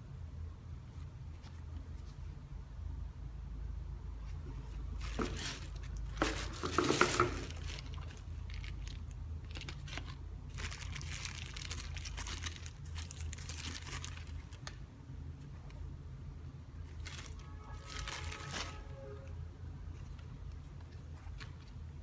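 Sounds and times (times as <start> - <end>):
packaging crinkling and rustling: 4.6 - 14.8, 16.8 - 19.3.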